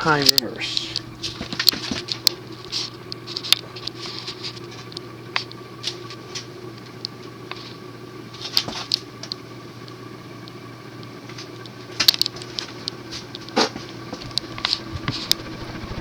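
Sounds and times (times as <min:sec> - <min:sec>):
ceiling fan motor humming: 0:00.0 - 0:16.0
sharp clicks: 0:00.1 - 0:02.3.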